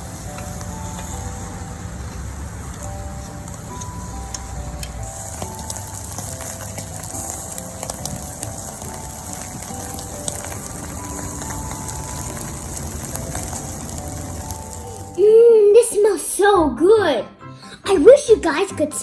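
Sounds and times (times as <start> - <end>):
meat sizzling on a grill: 0.0 - 15.7
crackles and pops: 2.1 - 15.4.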